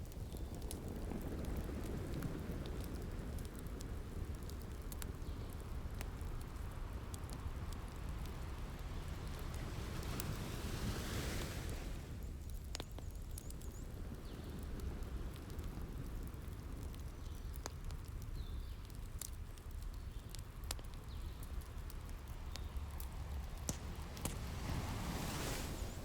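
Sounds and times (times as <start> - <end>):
wood fire crackling and popping: 0.0 - 26.0
ocean surf rumble: 8.8 - 12.2, 23.1 - 26.0.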